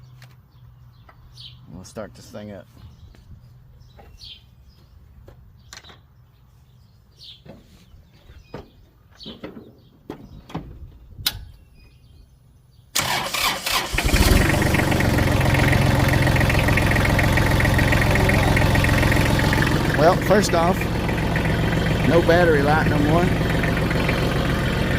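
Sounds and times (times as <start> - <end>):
diesel engine idling: 13.0 - 24.9
starter cranking engine: 13.0 - 24.9.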